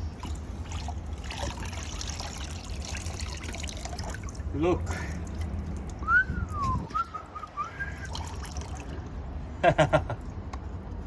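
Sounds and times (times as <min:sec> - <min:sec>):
steady low rumble: 0:00.0 - 0:11.0
gliding whistle: 0:06.0 - 0:08.1.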